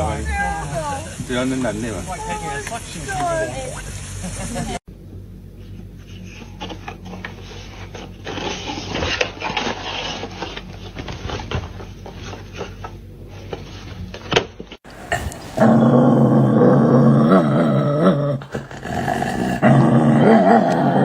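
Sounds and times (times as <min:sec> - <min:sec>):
rustling and scraping: 0:05.5 - 0:16.3
dog vocalizing loudly: 0:14.9 - 0:21.0.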